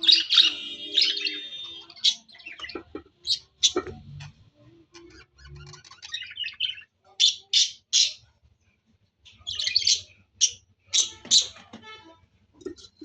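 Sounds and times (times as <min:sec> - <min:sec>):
high bird chirps: 0:00.0 - 0:04.2, 0:09.3 - 0:11.8.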